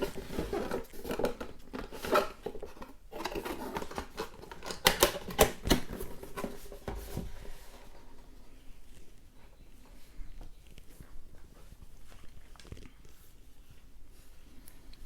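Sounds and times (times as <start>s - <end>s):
packaging rustling: 0.0s - 7.8s.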